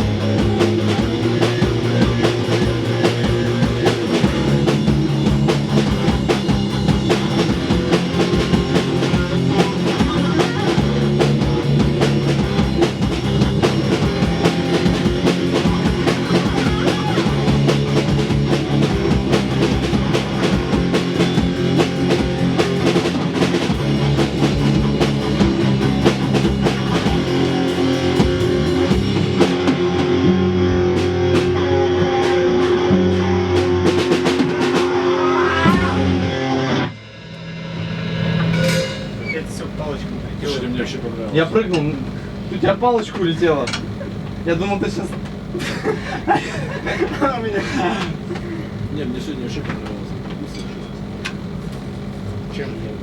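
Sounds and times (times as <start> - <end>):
electric guitar: 0.0 - 39.5
drum kit beating: 0.0 - 53.0.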